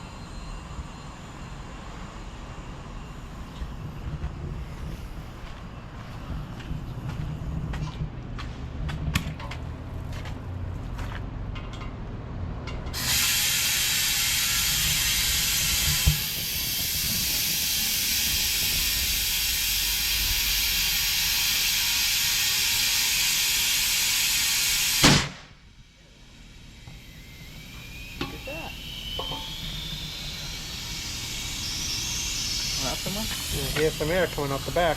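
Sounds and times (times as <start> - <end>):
compressed air hissing: 13.0 - 25.3, 27.2 - 34.9.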